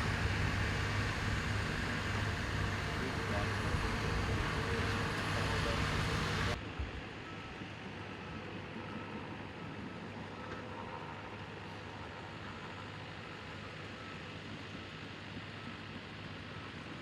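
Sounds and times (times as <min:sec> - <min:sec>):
diesel engines rumbling: 0:00.0 - 0:17.0.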